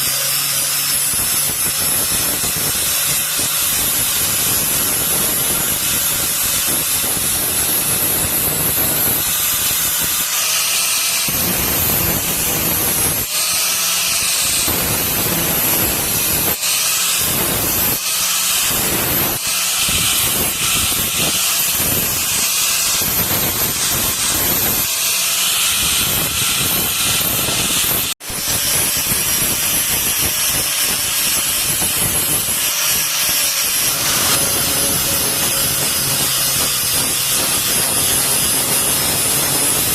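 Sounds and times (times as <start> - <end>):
power grinder grinding steel: 0.0 - 39.9.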